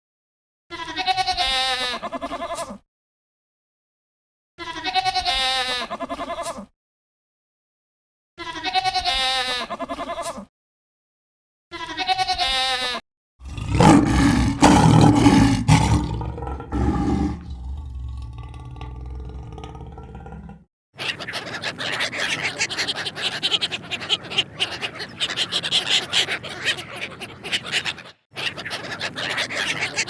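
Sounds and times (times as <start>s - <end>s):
rough noisy animal call: 13.4s - 20.6s
short wavering bleats: 13.5s - 20.6s.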